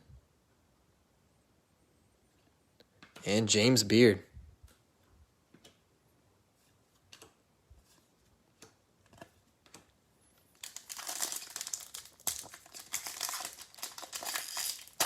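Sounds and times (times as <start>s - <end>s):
foil wrapper crinkling and tearing: 10.6s - 15.0s.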